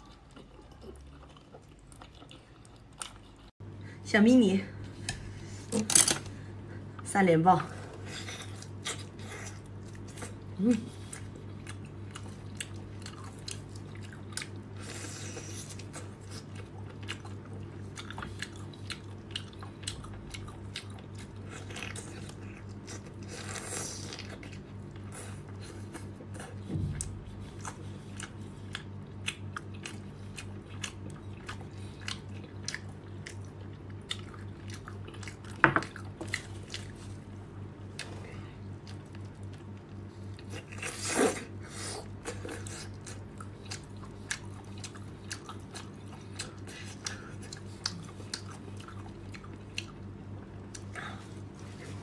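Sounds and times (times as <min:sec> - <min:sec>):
wet chewing clicks and smacks: 0:15.8 - 0:23.2, 0:27.0 - 0:37.0, 0:42.7 - 0:51.0.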